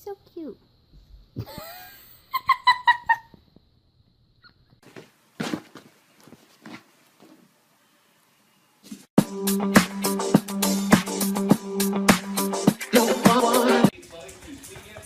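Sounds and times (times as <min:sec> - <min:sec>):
soft scuffs: 0:04.8 - 0:07.5.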